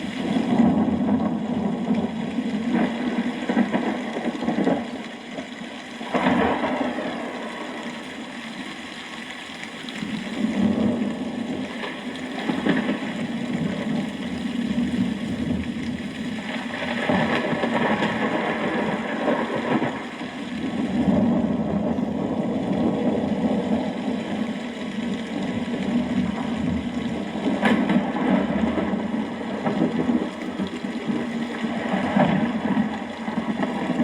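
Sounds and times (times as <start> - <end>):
steady rainfall: 0.0 - 34.0.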